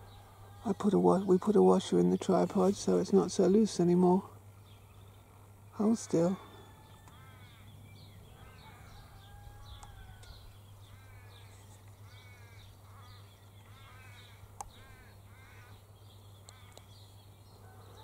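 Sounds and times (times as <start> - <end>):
raven cawing: 6.5 - 16.8.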